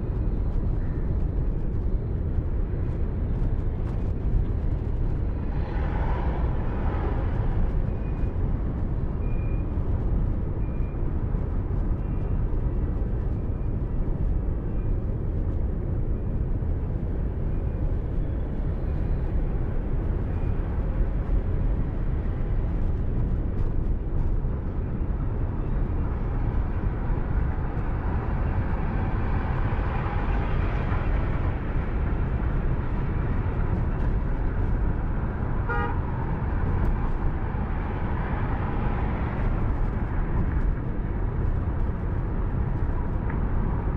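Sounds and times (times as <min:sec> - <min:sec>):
car road and engine noise: 0:00.0 - 0:43.9
vehicle horns tooting: 0:35.6 - 0:36.0.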